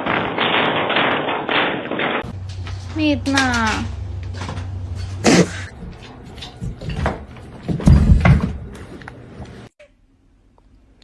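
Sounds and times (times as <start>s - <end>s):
knocks and thumps: 4.4s - 8.8s.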